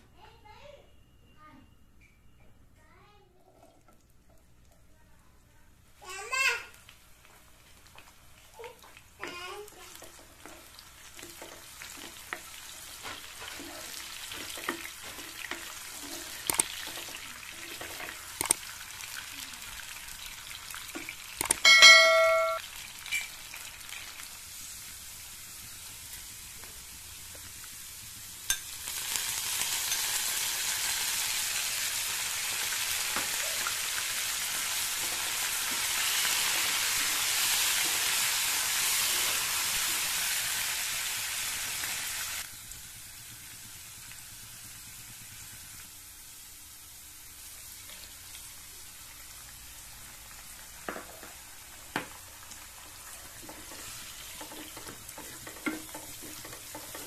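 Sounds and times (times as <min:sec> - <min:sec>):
vegetables sizzling in oil: 0:05.9 - 0:57.0
spatula scraping a wok: 0:09.8 - 0:18.2, 0:53.1 - 0:57.0
short metallic ring: 0:21.6 - 0:23.3.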